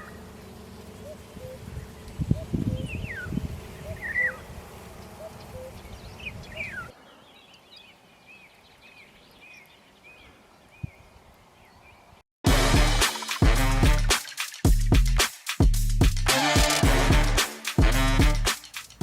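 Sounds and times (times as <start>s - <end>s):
birds whistling: 0.0s - 0.3s, 1.0s - 4.5s, 5.2s - 11.0s
bird cooing: 1.0s - 4.5s, 5.2s - 6.9s
music: 12.5s - 19.0s.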